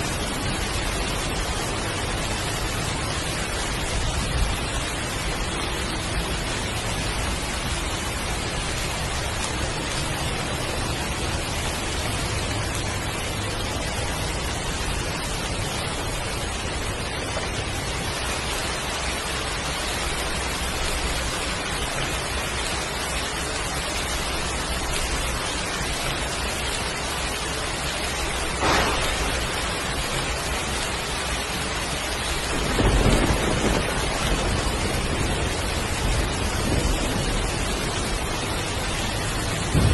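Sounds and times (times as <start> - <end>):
heavy rain: 0.0 - 39.9
thunder rumble: 0.0 - 39.9
thunder crack: 28.5 - 30.7, 32.4 - 39.9.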